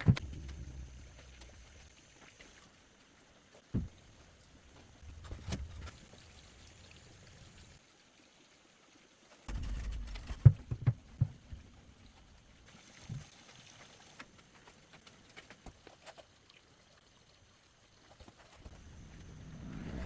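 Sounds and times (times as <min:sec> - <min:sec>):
low rumbling noise: 0:18.7 - 0:20.0.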